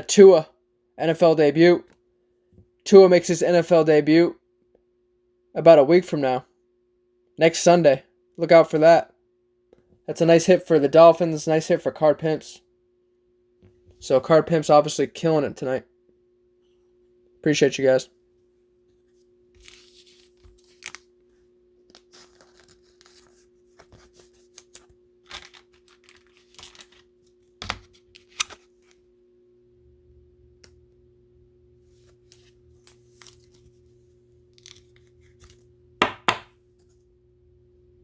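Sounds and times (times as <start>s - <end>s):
cards shuffling: 19.1s - 21.2s, 21.8s - 29.0s, 31.9s - 35.7s
plastic wrapper tearing and crackling: 24.5s - 28.6s, 34.5s - 35.6s.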